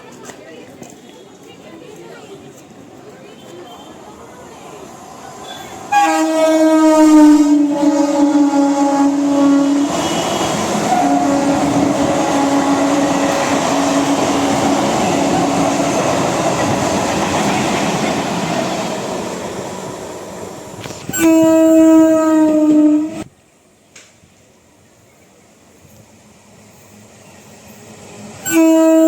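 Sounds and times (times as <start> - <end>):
train rumbling on rails: 0.0 - 29.0
train horn: 5.5 - 16.8, 21.1 - 23.3, 28.4 - 29.0.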